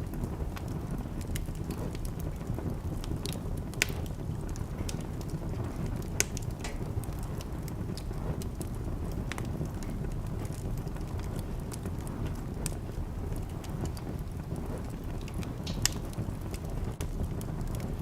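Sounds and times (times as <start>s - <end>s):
low fire rumble: 0.0s - 18.0s
sharp pops from fire: 0.0s - 18.0s
wood fire crackling: 0.0s - 18.0s.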